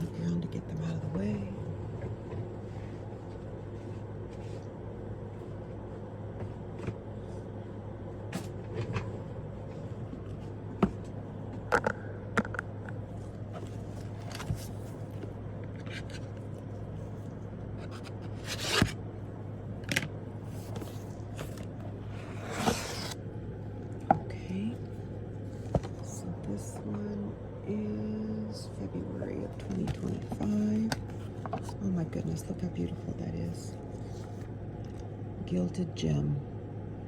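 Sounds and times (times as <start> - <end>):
steady low hum: 0.0 - 37.0
cardboard boxes being handled: 13.5 - 15.3.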